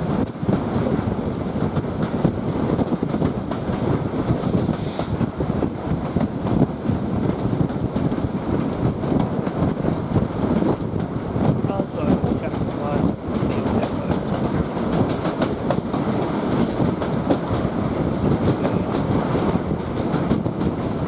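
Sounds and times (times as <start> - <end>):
train wheels rumbling on rail: 0.0 - 21.0
wind on microphone: 0.0 - 21.0
rattles and clicks: 12.2 - 17.7.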